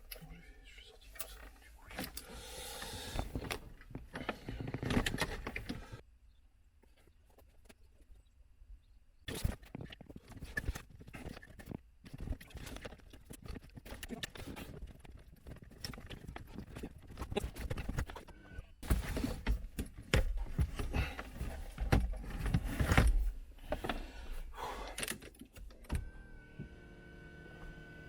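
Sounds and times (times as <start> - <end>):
hard parts clicking and knocking: 2.0 - 6.0, 24.8 - 26.1.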